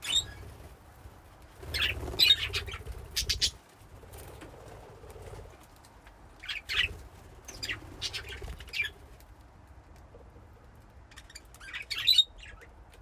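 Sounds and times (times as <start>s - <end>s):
budgies chirping: 0.0s - 0.7s, 1.6s - 3.6s, 6.4s - 9.0s, 11.1s - 12.7s
wings fluttering: 0.0s - 12.0s.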